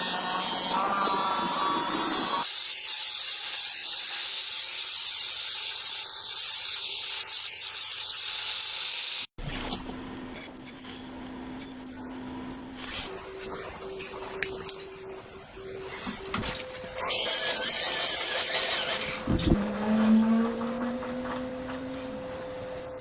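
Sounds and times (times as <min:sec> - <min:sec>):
short high-pitched tones: 0:19.8 - 0:23.0.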